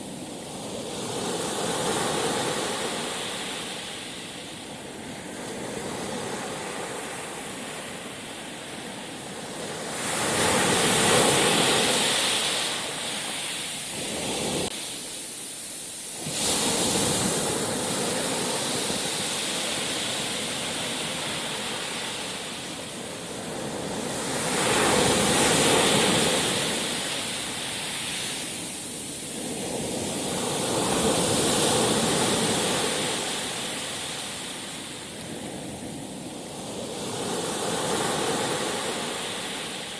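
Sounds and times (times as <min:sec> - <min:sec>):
sea waves washing: 0:00.0 - 0:39.9.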